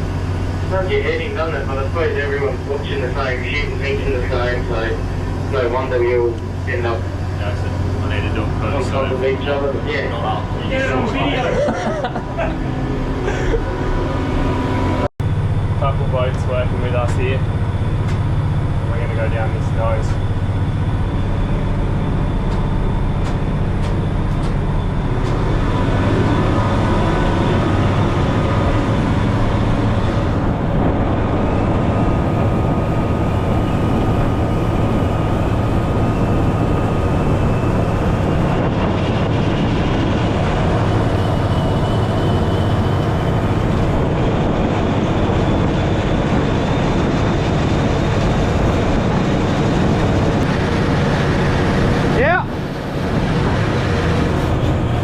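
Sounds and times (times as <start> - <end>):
faint high whine: 0.0 - 11.7
boat diesel engine droning: 0.0 - 55.0.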